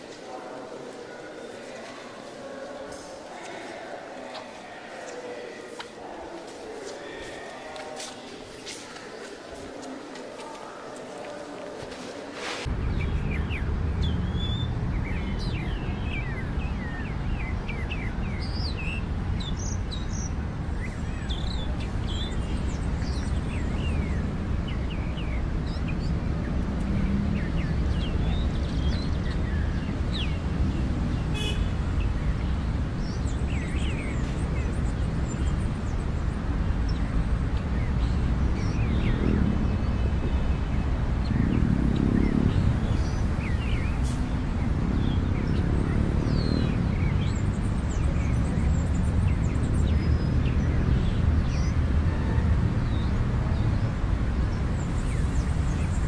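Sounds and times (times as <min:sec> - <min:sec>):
small birds chirping: 0:12.6 - 0:51.9.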